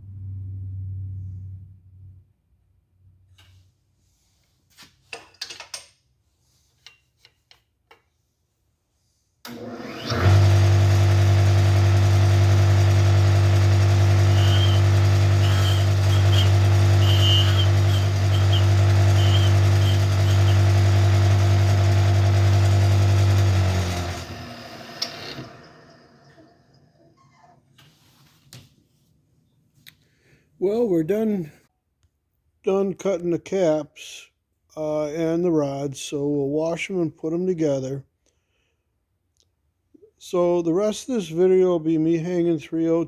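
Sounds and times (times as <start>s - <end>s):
cutter motor humming: 9.5s - 26.6s.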